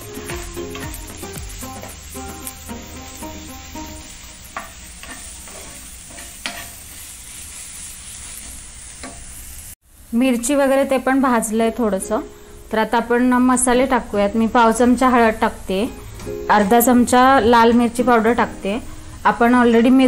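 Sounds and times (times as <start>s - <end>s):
food sizzling in oil: 0.0s - 20.0s
metal spoon scraping a pan: 4.5s - 9.3s.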